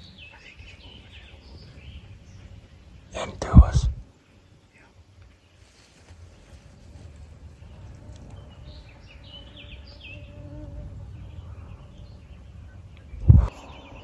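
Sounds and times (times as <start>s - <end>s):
low outdoor rumble: 0.0s - 14.0s
flying insect buzzing: 7.5s - 12.2s.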